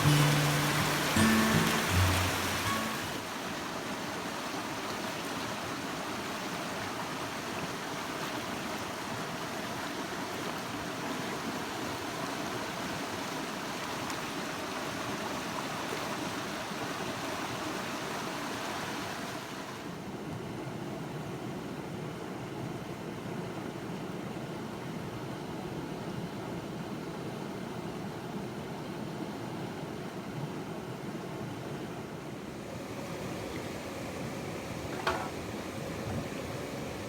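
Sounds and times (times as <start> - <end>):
river water rushing: 0.0 - 19.9, 32.3 - 37.0.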